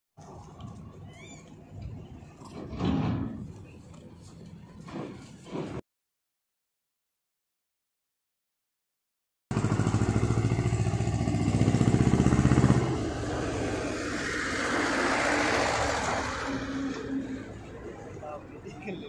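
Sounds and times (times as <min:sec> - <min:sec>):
traffic noise: 0:00.2 - 0:05.8, 0:09.5 - 0:19.0
vehicle engine pulsing: 0:09.5 - 0:18.6.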